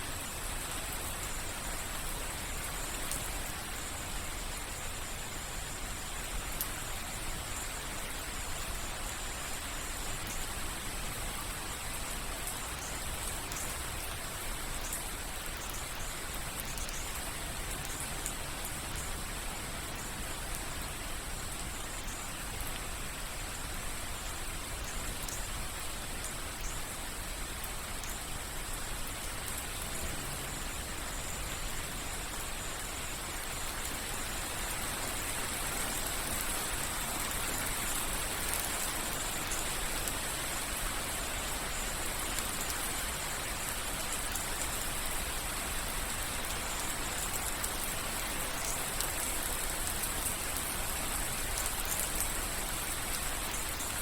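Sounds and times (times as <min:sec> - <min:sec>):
rain dripping and pattering: 0:00.0 - 0:54.0.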